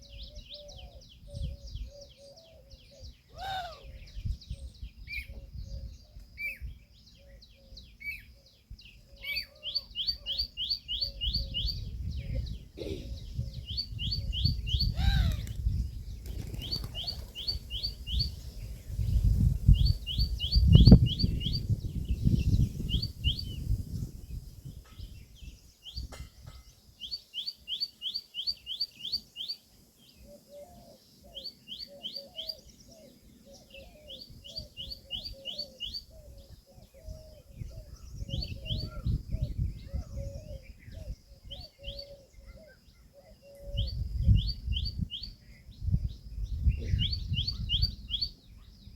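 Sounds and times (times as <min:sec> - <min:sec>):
wind on microphone: 0:00.0 - 0:02.1, 0:03.0 - 0:07.0, 0:11.0 - 0:26.7, 0:34.2 - 0:42.6, 0:43.5 - 0:48.9
birds chirping: 0:00.0 - 0:48.9.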